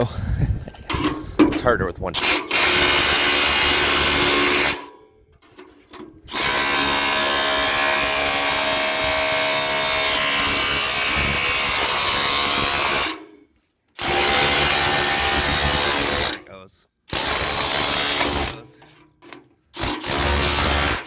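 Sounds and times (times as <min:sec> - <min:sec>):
hammer drill on steel: 0:02.2 - 0:04.9, 0:06.3 - 0:13.3, 0:14.0 - 0:16.4, 0:17.1 - 0:18.6, 0:19.8 - 0:21.0.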